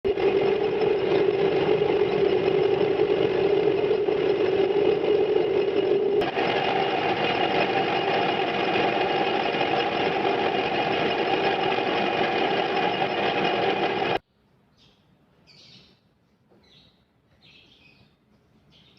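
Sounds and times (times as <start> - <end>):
electric water pump humming: 0.0 - 14.2.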